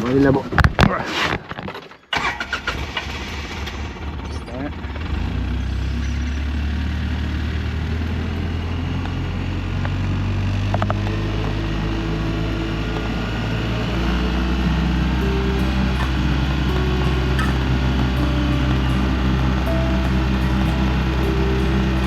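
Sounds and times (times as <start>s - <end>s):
vehicle engine running: 4.8s - 22.0s.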